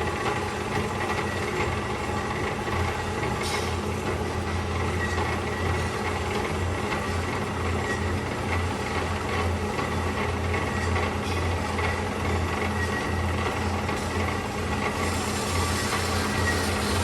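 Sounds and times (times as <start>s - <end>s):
band saw humming with high whine: 12.7s - 17.0s.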